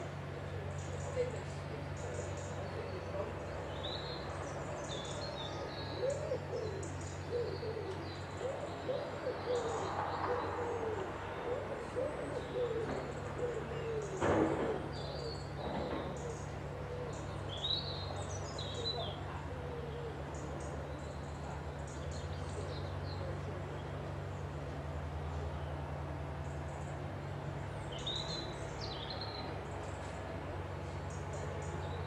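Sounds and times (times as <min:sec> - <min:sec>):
small birds chirping: 0:00.4 - 0:24.6
pigeon cooing: 0:05.6 - 0:15.4.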